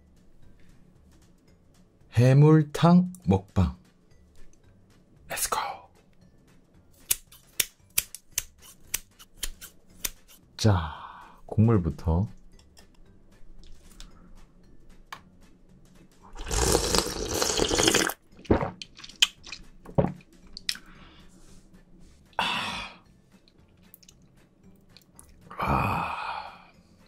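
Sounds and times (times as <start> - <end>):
person slurping from spoon: 16.3 - 19.6
wet mouth clicks: 16.4 - 18.2, 18.8 - 19.7, 20.5 - 20.9, 23.9 - 24.2
breathy vocal sound: 22.4 - 23.0, 25.5 - 26.8.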